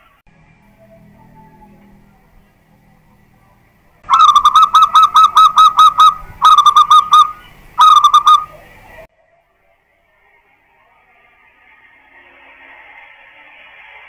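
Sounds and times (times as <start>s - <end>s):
dove cooing: 4.1s - 8.9s.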